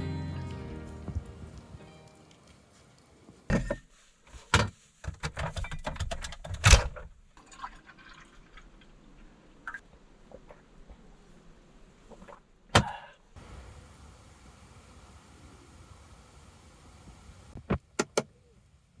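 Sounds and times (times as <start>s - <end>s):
water dripping: 0.0s - 3.5s, 13.4s - 17.6s
bath water splashing and pouring: 0.3s - 3.5s, 7.4s - 8.9s.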